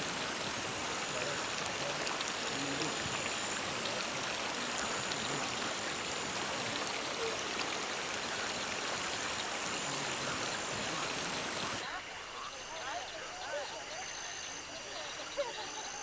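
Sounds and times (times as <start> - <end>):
running water: 0.0 - 16.0.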